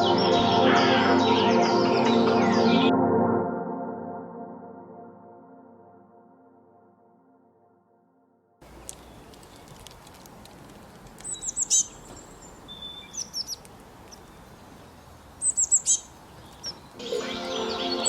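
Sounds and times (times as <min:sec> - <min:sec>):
songbird chirping: 0:08.6 - 0:18.0
steady outdoor hiss: 0:08.6 - 0:18.0
bird whistle: 0:11.2 - 0:13.6, 0:15.4 - 0:18.0.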